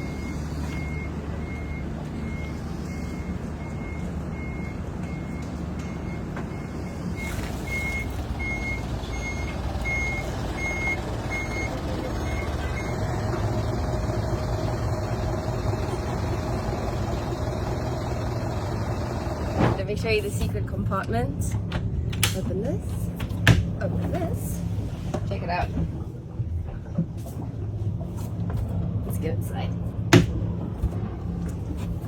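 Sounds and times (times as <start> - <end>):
vehicle reversing alarm beeping: 0.0 - 19.5
heavy engine running: 0.0 - 32.0.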